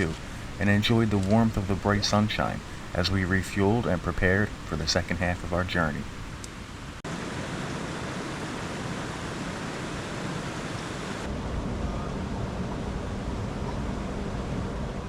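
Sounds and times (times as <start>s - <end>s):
creek cascades rushing: 0.0s - 6.4s.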